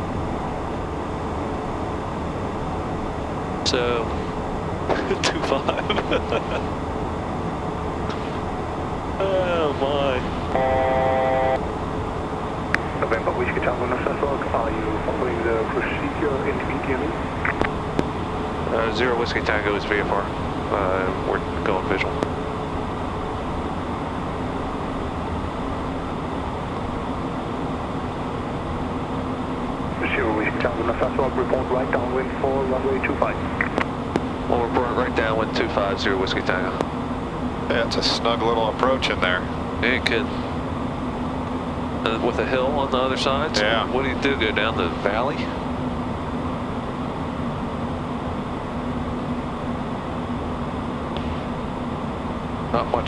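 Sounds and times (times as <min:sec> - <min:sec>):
faint jet engine hum: 0:00.0 - 0:53.0
rush of air in cockpit: 0:35.6 - 0:53.0.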